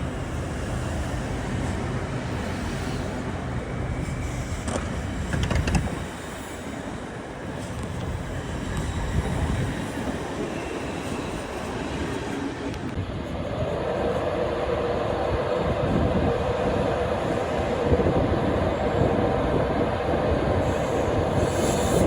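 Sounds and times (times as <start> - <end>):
train rumbling by: 0.0 - 22.0
sharp clicks and knocks: 4.6 - 6.0.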